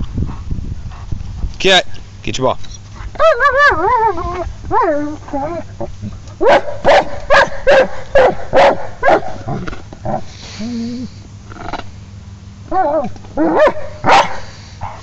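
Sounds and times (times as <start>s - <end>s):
dog barking and yelping: 3.1s - 10.2s, 12.7s - 15.0s.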